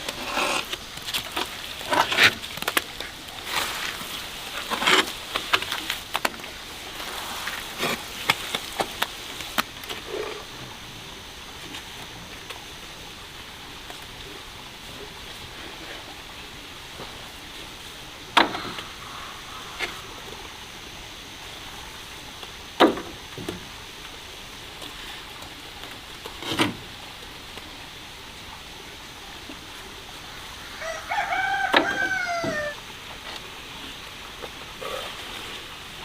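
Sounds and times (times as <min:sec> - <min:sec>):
rooster crowing: 0:30.7 - 0:32.8.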